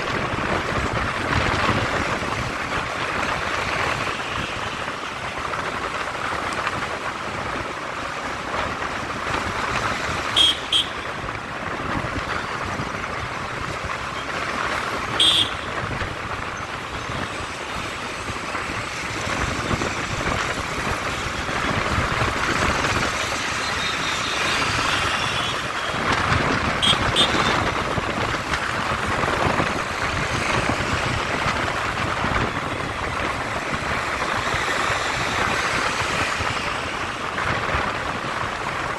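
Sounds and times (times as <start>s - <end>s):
road traffic noise: 0.0s - 38.9s
vehicle horn beeps: 10.4s - 11.0s, 15.2s - 15.7s, 26.8s - 27.7s.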